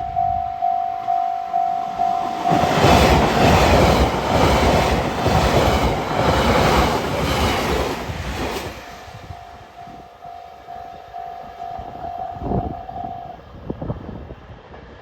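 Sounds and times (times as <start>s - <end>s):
level crossing warning bell: 0.0s - 4.1s, 9.0s - 13.6s
train wheels clattering on rails: 1.8s - 10.3s.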